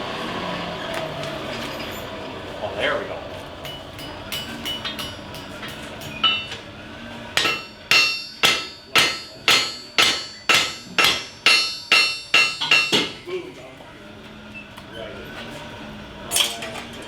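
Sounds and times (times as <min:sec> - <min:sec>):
hammer ringing on an anvil: 0:03.6 - 0:06.6, 0:07.4 - 0:13.2.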